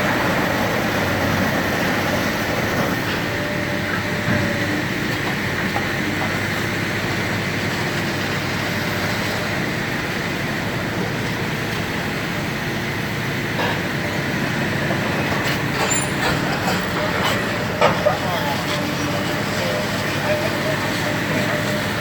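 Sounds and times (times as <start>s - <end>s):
heavy machinery rumble: 0.0s - 22.0s.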